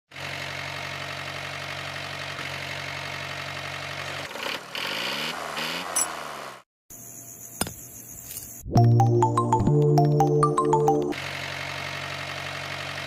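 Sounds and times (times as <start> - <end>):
truck engine idling and revving: 0.1 - 6.6, 11.2 - 13.0.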